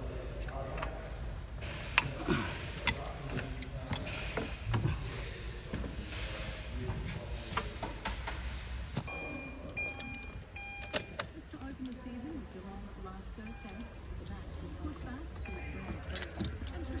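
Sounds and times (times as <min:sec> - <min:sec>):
clicks and knocks on car parts: 0:01.6 - 0:09.1.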